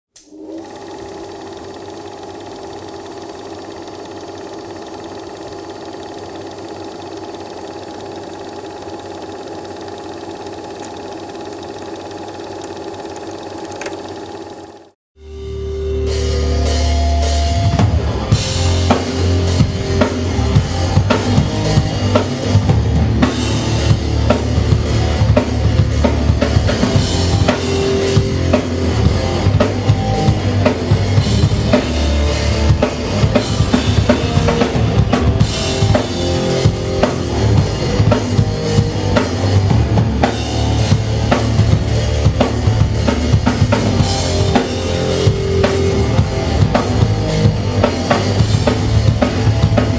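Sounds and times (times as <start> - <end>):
drum kit playing fast: 16.1 - 49.9.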